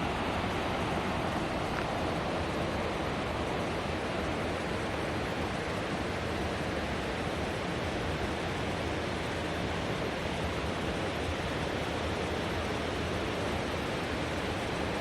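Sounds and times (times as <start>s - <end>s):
river water rushing: 0.0s - 4.6s.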